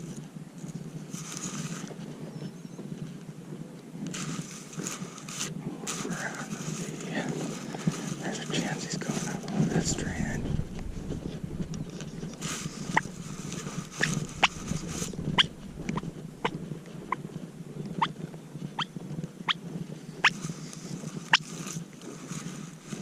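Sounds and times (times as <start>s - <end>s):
turkeys clucking: 12.6s - 17.2s.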